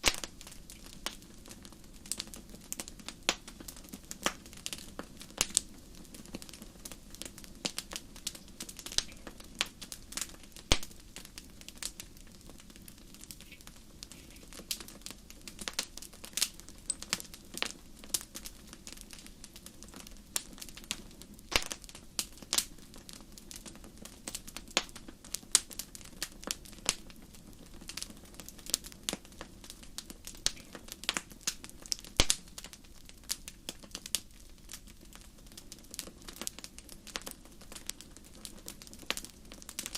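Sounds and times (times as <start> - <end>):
steady low hiss: 0.0 - 39.9
wood fire crackling: 0.0 - 39.9.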